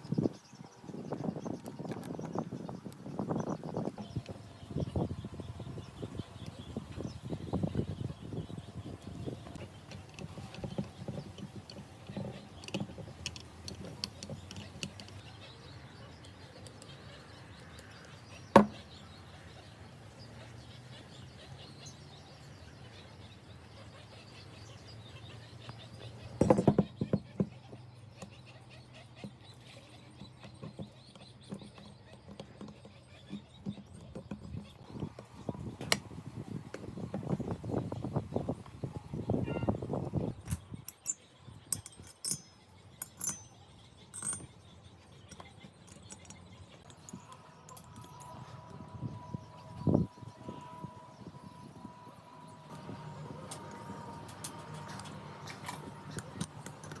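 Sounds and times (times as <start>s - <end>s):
faint bird chirps: 0.0s - 56.4s
sharp clicks and knocks: 9.4s - 15.3s, 53.4s - 57.0s
light metallic clinks: 40.5s - 49.9s
steady low hum: 46.8s - 57.0s.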